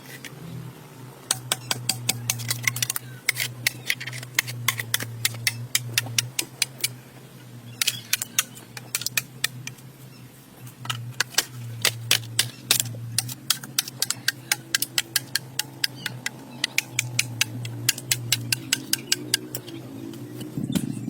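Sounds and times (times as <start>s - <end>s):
low steady hum: 0.0s - 21.0s
sharp clicks and taps: 10.8s - 20.9s.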